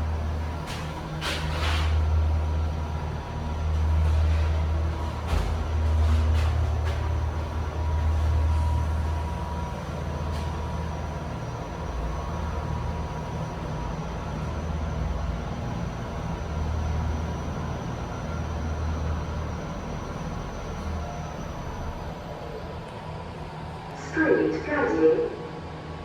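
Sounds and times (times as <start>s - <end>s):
elevator hum: 0.0s - 26.0s.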